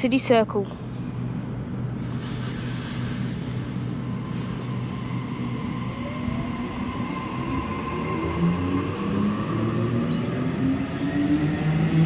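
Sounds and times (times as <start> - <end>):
electric train hum: 0.0 - 12.0
short hiss: 2.0 - 3.6.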